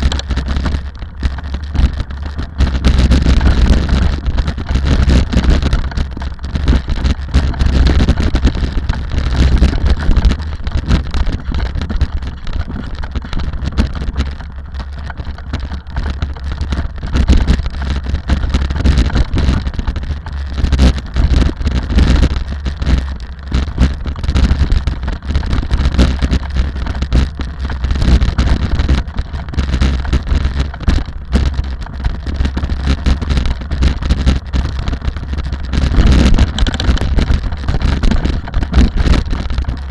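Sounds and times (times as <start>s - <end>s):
engine and road rumble: 0.0s - 39.9s
wind buffeting microphone: 15.1s - 39.9s.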